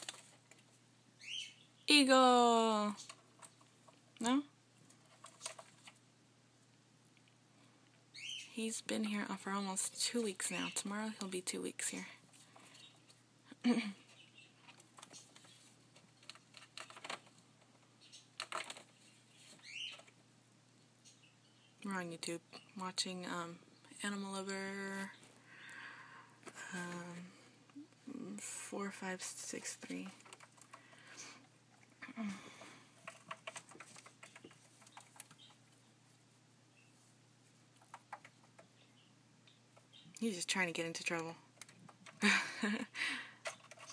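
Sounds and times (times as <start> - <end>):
computer keyboard clicks: 33.0 - 35.6.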